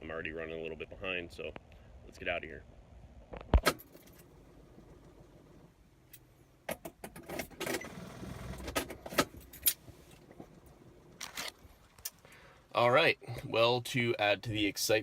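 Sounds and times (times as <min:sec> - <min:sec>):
keys jangling: 0:09.4 - 0:09.8.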